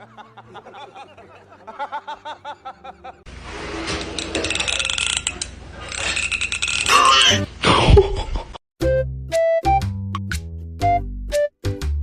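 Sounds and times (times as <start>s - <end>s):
person snickering and laughing: 0.0s - 3.3s, 7.6s - 8.6s.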